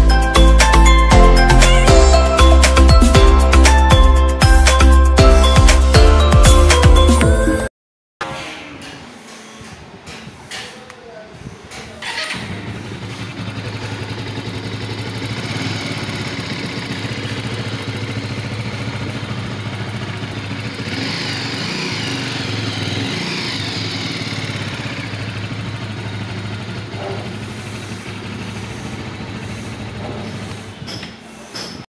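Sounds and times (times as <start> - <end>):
motorcycle engine idling: 12.0 - 31.3.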